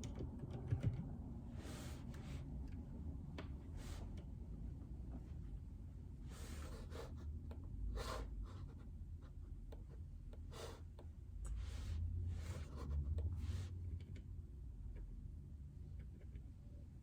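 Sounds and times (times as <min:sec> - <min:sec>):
soft scratching strokes at desk: 0:01.5 - 0:02.6, 0:03.7 - 0:04.3, 0:06.2 - 0:07.4, 0:08.0 - 0:14.0.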